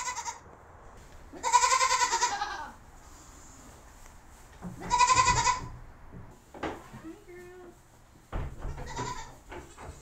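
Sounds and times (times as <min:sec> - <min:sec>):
goat bleating: 0:00.0 - 0:00.4, 0:01.3 - 0:02.8, 0:04.8 - 0:05.8, 0:08.8 - 0:09.5.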